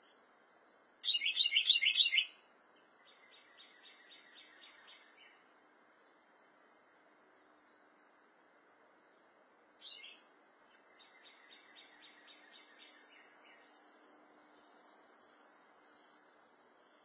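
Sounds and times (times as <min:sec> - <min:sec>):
faint bird calls: 0:01.0 - 0:02.4, 0:09.8 - 0:17.0
insects buzzing: 0:03.6 - 0:17.0.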